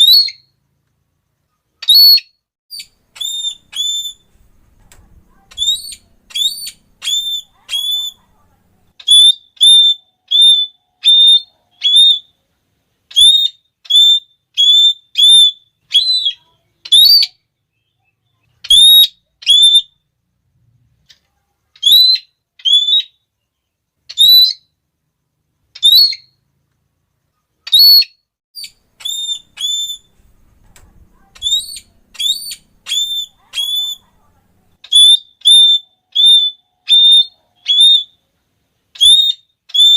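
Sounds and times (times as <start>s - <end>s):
parrot shrill calls: 0.0s - 0.5s, 1.8s - 4.3s, 5.3s - 8.2s, 9.0s - 12.4s, 13.1s - 17.4s, 18.6s - 20.0s, 21.8s - 23.2s, 24.1s - 24.7s, 25.8s - 26.4s, 27.6s - 30.2s, 31.1s - 34.2s, 34.8s - 38.2s, 38.9s - 39.9s.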